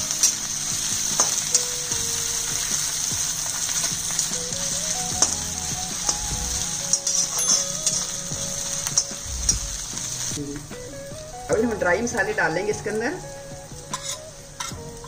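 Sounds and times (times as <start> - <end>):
onions sizzling in hot oil: 0.0 - 15.0
metal spatula scraping pan: 6.9 - 8.1, 13.9 - 14.8.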